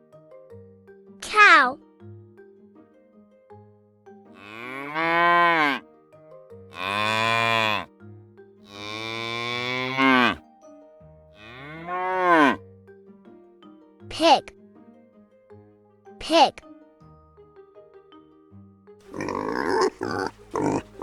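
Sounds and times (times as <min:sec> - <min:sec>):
cow mooing: 0:04.4 - 0:05.8, 0:06.8 - 0:07.9, 0:08.7 - 0:10.4, 0:11.4 - 0:12.6, 0:19.1 - 0:21.0.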